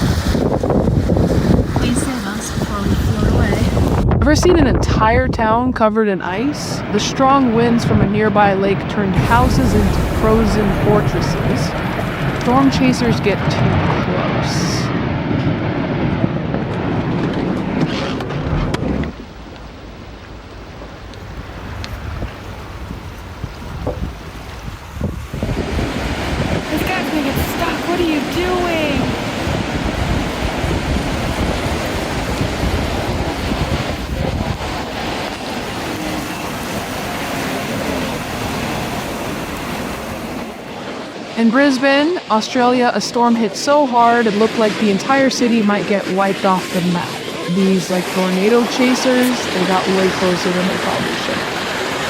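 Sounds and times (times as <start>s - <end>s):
rain: 0.0s - 4.2s, 6.4s - 52.0s
storm wind rushing over microphone: 0.0s - 52.0s
vehicle engine and road noise: 6.3s - 26.0s.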